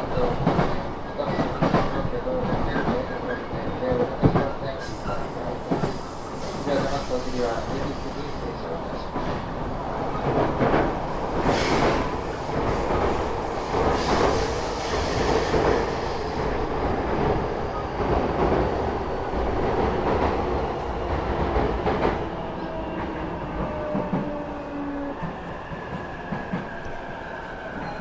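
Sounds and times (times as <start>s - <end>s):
train wheel rumble: 9.0s - 27.0s.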